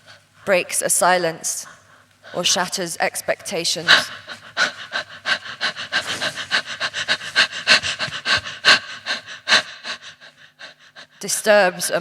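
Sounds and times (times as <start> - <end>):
person panting hard: 3.8 - 11.4.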